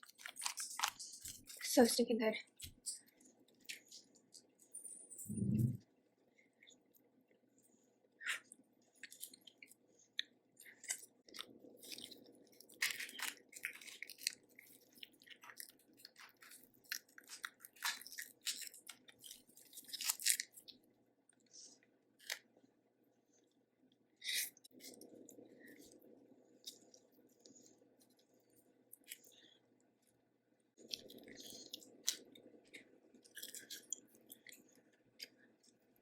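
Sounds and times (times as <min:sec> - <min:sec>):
person chewing and crunching: 0:00.0 - 0:01.6, 0:08.2 - 0:21.5, 0:24.3 - 0:30.2, 0:30.8 - 0:36.0.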